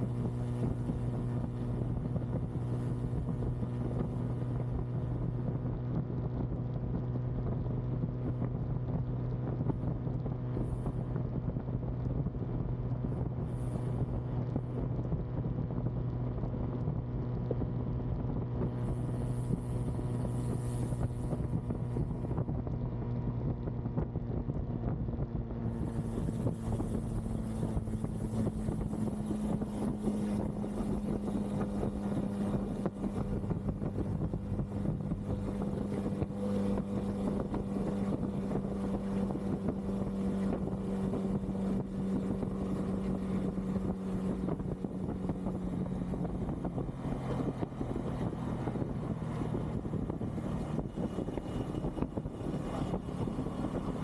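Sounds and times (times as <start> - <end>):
motorcycle engine cruising: 0.0 - 54.0
wind on microphone: 0.0 - 54.0.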